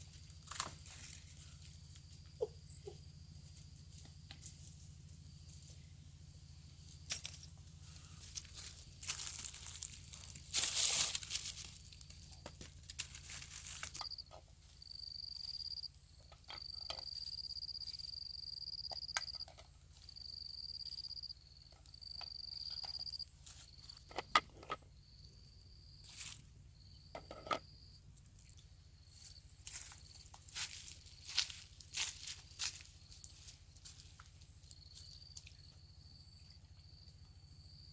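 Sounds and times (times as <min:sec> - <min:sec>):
rustling handling noise: 0:07.1 - 0:14.0
insect trilling: 0:14.8 - 0:15.9.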